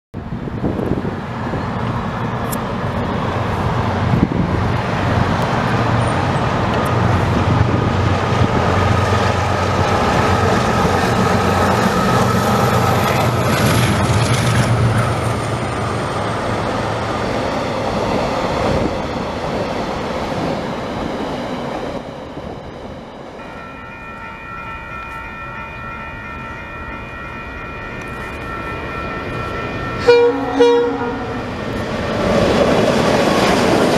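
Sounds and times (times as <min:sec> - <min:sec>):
diesel locomotive engine droning: 0:00.2 - 0:33.9
distant locomotive horn chord: 0:30.0 - 0:31.6.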